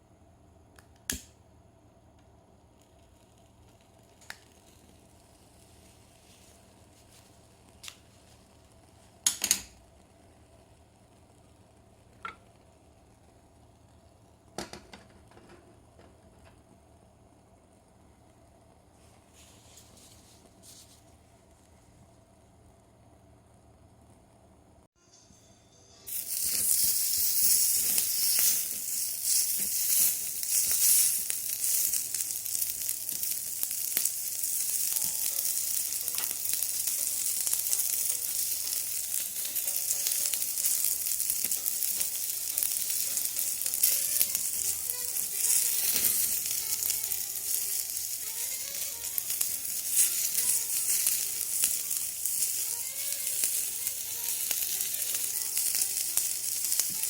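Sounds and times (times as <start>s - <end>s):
food sizzling on iron griddle: 26.1s - 57.0s.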